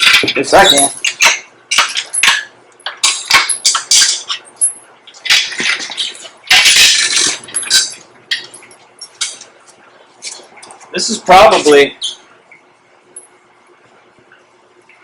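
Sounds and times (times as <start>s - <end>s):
metal squeaking and clinking: 0.0s - 9.4s.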